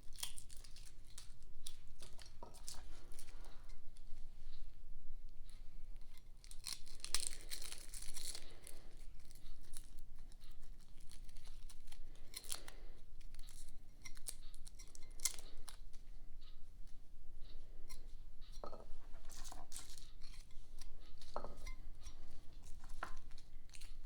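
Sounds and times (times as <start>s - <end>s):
garlic skins tearing and crinkling: 0.0s - 3.5s, 6.1s - 15.8s, 19.2s - 24.0s.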